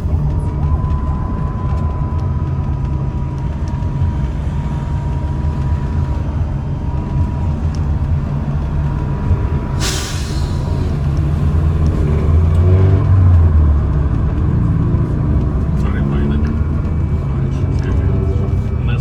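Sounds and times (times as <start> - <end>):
high whine of traction drive: 0.0 - 19.0
trolleybus low rumble: 0.0 - 19.0
hiss of compressed air: 9.8 - 10.7.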